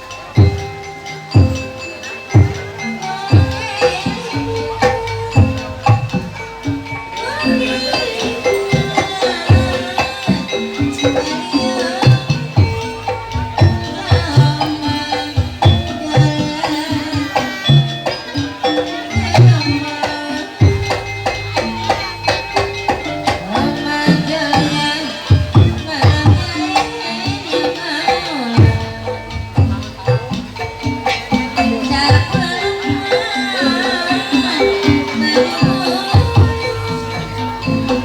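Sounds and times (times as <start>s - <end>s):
gongs and metallophones ringing: 0.0s - 38.0s
hand drums in busy rhythm: 0.0s - 38.0s.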